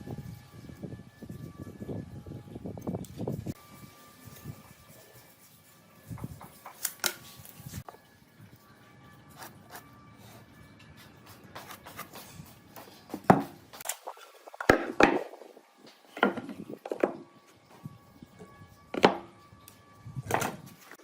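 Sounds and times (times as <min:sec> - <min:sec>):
faint music: 0:00.0 - 0:21.0
wood knocks and thunks: 0:13.3 - 0:13.6, 0:16.2 - 0:17.2.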